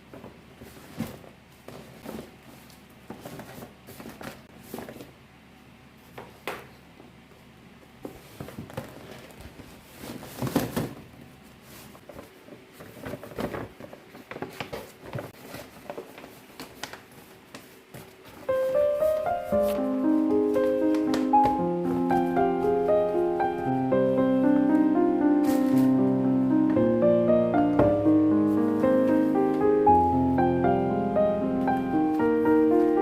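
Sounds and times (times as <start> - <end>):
rustling: 0.0 - 5.2, 8.0 - 26.0, 28.0 - 30.5.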